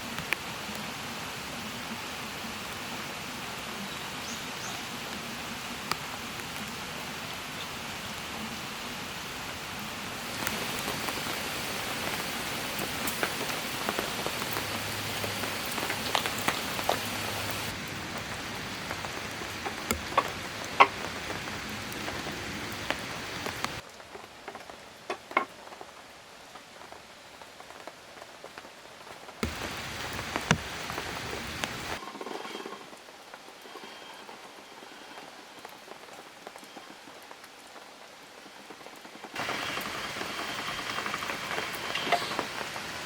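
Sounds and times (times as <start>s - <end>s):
raindrops ticking close by: 0.0s - 43.0s
steady rain falling: 0.0s - 43.0s.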